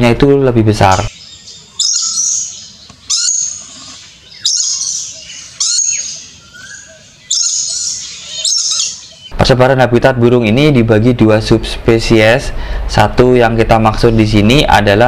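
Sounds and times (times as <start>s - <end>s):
bird calls: 0.8s - 9.4s.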